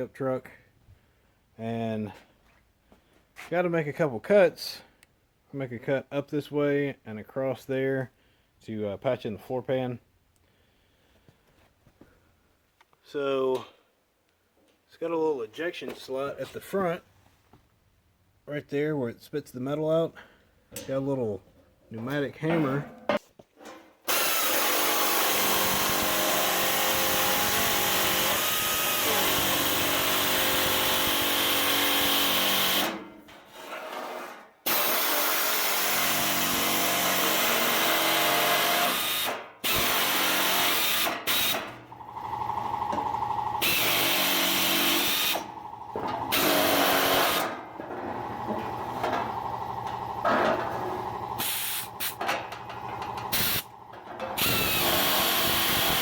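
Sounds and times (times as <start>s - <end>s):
air nibbler cutting sheet steel: 42.9s - 50.0s, 50.6s - 56.0s.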